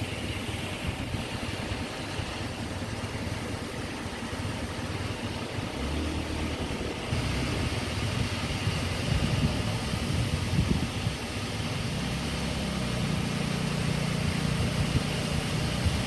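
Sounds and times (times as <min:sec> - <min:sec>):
wind buffeting microphone: 0:06.6 - 0:13.2, 0:13.9 - 0:16.0.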